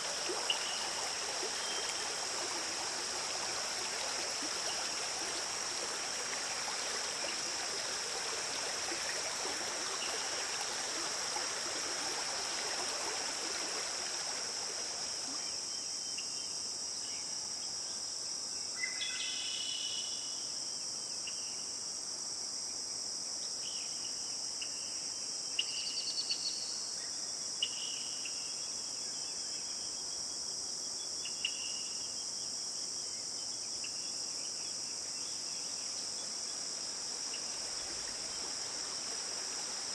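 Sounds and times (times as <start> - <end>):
stream water running: 0.0 - 16.0, 34.7 - 39.9
insects chirping chorus: 0.0 - 39.9.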